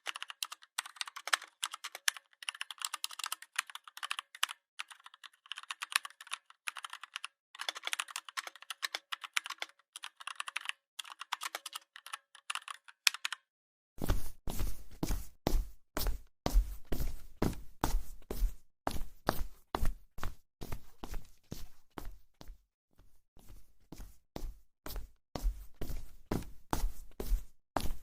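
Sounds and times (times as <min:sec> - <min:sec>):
computer keyboard typing: 0:00.0 - 0:13.5.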